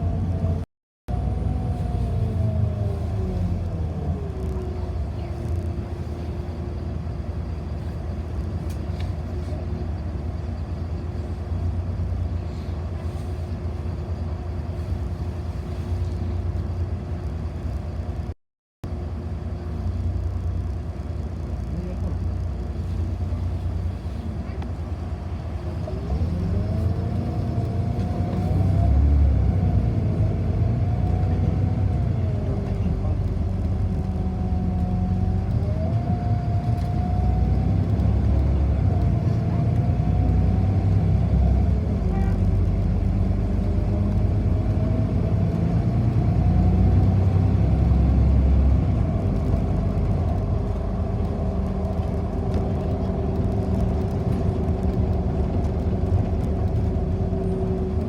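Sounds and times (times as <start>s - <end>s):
bus engine rumble: 0.0s - 58.0s
drivetrain whine: 0.0s - 58.0s.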